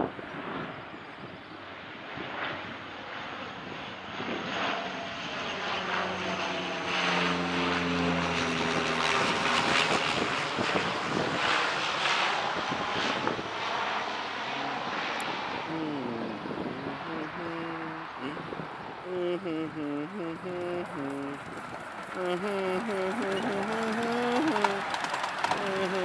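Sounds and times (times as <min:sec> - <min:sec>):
park ride train motor droning: 0:19.9 - 0:26.0.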